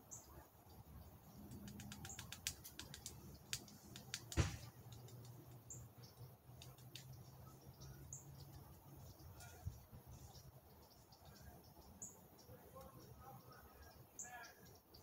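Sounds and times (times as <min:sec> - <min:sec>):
sharp clicks: 0:01.4 - 0:05.8, 0:06.5 - 0:07.2
dull thump: 0:04.3 - 0:04.8.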